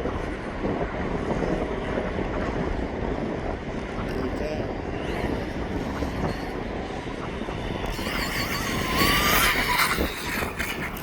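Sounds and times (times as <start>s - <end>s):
wind rumble on microphone: 0.0s - 11.0s
electric motor whine: 5.1s - 11.0s.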